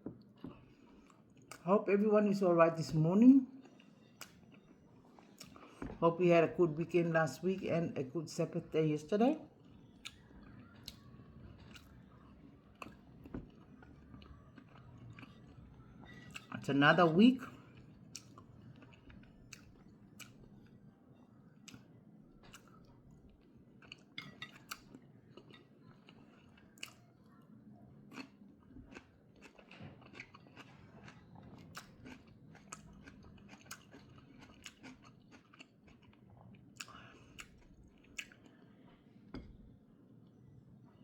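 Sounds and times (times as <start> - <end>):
person chewing with crunches: 3.6 - 6.0, 9.6 - 16.6, 17.4 - 20.8, 21.6 - 27.1, 28.1 - 39.1.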